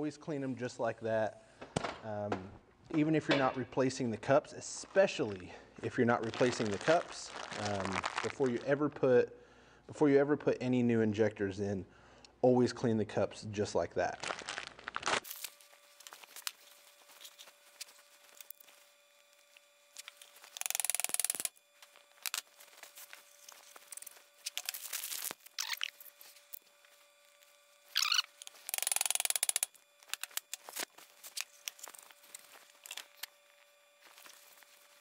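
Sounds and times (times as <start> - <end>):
rustling scraping and clicks of cleaning: 15.2 - 20.6, 21.7 - 28.7, 30.0 - 35.0.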